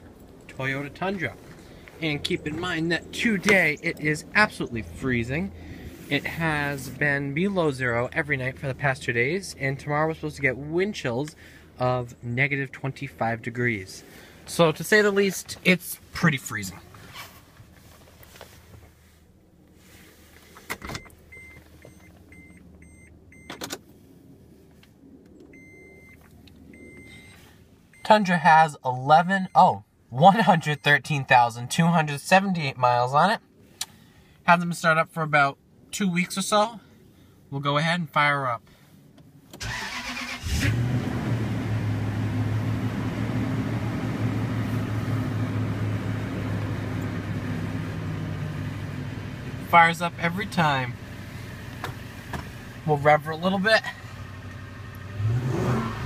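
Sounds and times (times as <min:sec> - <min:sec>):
engine starting and idling: 0:39.6 - 0:43.7.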